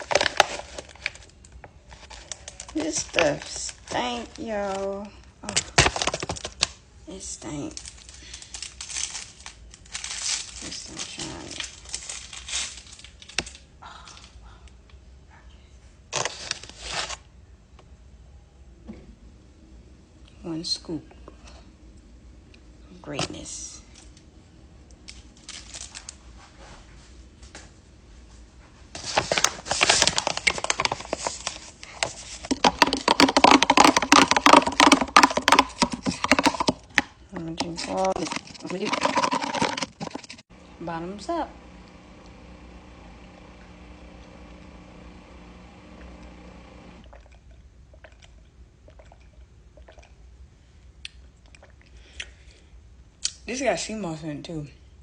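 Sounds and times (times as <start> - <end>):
rattling clicks of drink container: 32.5 - 40.4
steady low hum: 39.9 - 47.3.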